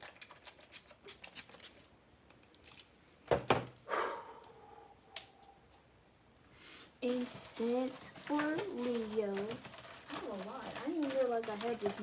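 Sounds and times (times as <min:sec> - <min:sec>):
rummaging through packets and boxes: 0:07.0 - 0:12.0.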